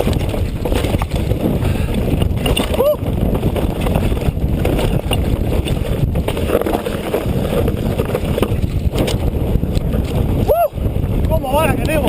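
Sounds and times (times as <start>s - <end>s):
electric bike rumble and rattle: 0.0s - 12.0s
wind buffeting microphone: 0.0s - 12.0s.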